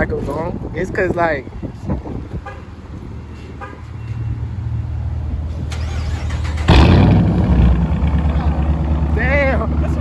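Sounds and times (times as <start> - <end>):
car engine rumble: 4.2 - 10.0.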